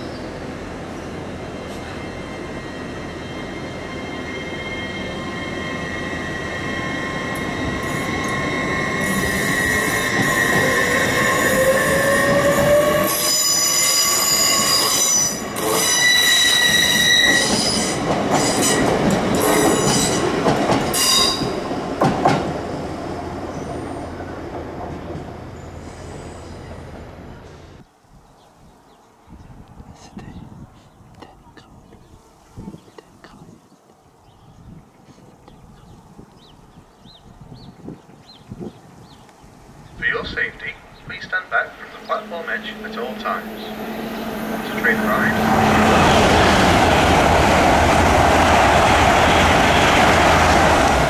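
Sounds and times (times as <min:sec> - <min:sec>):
train wheels squealing: 0:01.5 - 0:20.2, 0:20.9 - 0:21.6, 0:25.6 - 0:26.8.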